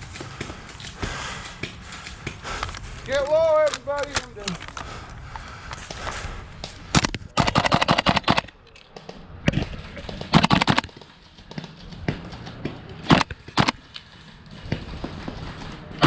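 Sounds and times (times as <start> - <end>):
airsoft rifle shots: 6.9 - 8.5, 10.2 - 10.9, 13.0 - 13.8.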